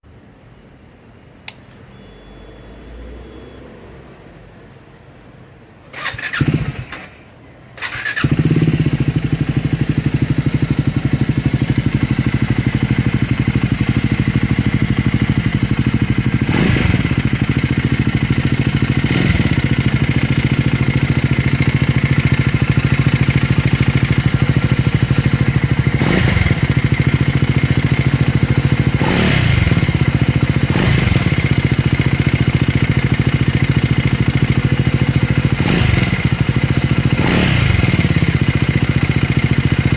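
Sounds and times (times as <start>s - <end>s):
motorcycle engine starting and idling: 5.9s - 39.9s.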